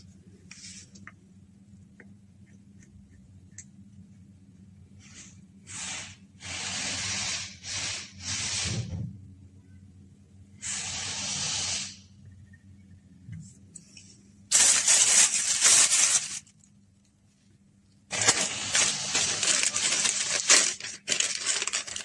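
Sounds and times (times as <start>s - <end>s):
hissing spray bursts: 5.7s - 8.9s, 10.6s - 12.1s, 18.1s - 19.7s.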